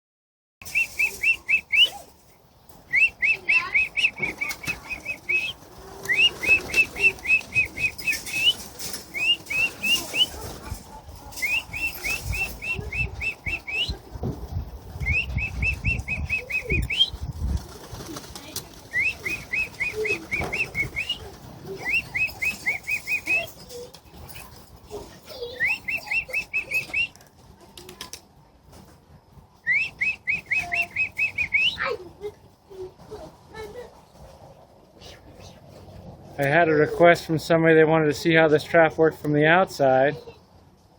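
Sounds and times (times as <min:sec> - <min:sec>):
bird chirping: 0:02.7 - 0:10.4, 0:11.2 - 0:14.0, 0:15.0 - 0:17.3, 0:18.9 - 0:23.8, 0:25.3 - 0:27.2, 0:29.7 - 0:31.9.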